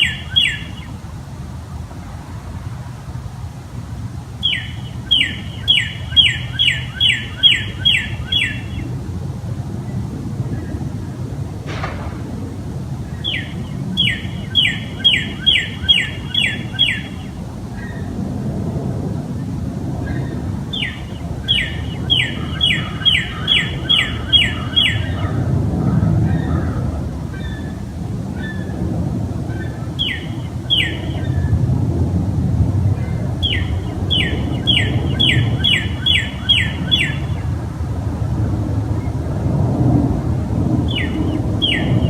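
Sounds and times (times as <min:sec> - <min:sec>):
steady low rumble: 0:00.0 - 0:42.0
bird calls sliding downward: 0:04.4 - 0:08.9, 0:13.1 - 0:18.0, 0:20.7 - 0:25.2, 0:33.4 - 0:37.4.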